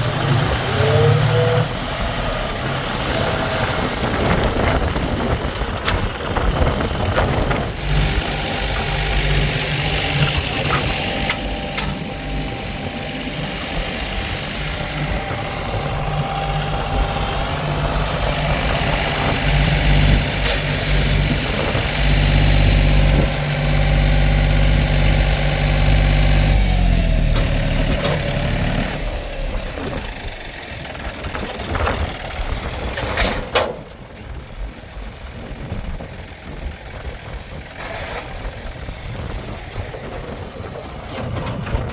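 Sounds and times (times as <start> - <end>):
heavy diesel engine running: 0.0 - 41.9
metal knocks and clanks: 10.2 - 12.2, 32.9 - 34.4.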